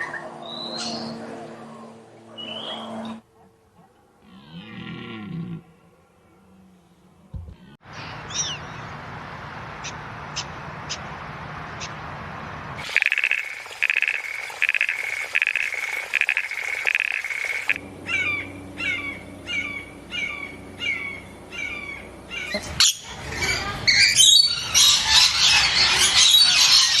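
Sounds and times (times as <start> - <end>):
birds calling and chirping: 0.0 - 3.2, 8.0 - 9.0, 12.8 - 27.0.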